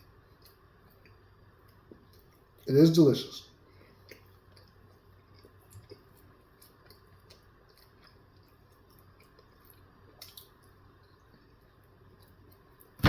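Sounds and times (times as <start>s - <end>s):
person chewing: 3.7s - 12.8s.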